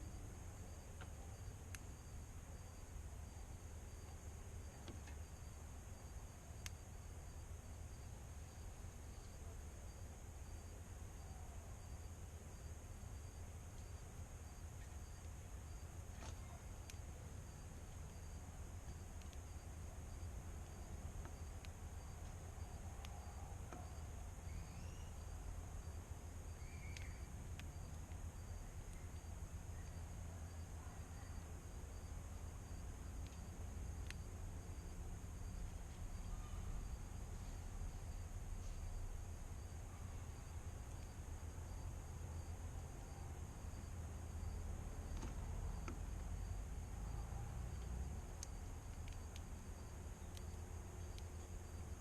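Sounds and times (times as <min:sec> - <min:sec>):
insects chirping: 0:00.0 - 0:52.0
low steady rumble: 0:00.0 - 0:52.0
faint clicks: 0:16.1 - 0:17.1, 0:19.2 - 0:19.6, 0:26.6 - 0:28.2, 0:33.1 - 0:34.3, 0:47.7 - 0:49.7, 0:50.3 - 0:51.5
faint bird chirps: 0:22.7 - 0:25.4, 0:26.5 - 0:31.4, 0:36.2 - 0:38.2
light clicks: 0:47.8 - 0:49.6, 0:50.3 - 0:51.4.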